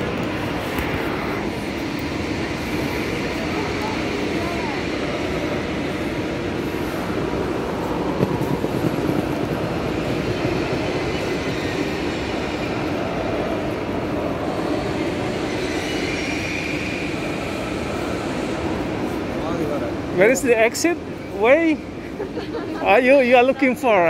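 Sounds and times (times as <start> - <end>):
echoing rumble of trains: 0.0 - 24.0
high wheel squeal: 14.4 - 19.9.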